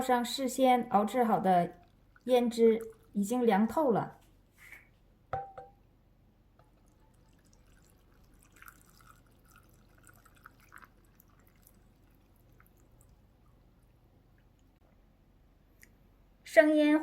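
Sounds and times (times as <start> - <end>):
faint trickling and dripping: 1.0 - 3.9, 6.6 - 14.9
marinade pouring over shrimp: 6.6 - 13.8.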